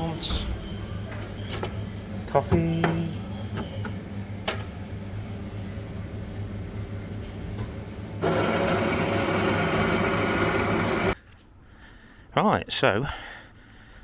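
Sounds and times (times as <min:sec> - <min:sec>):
coffee machine low hum: 0:00.0 - 0:11.2
coffee machine whirring: 0:03.1 - 0:11.2.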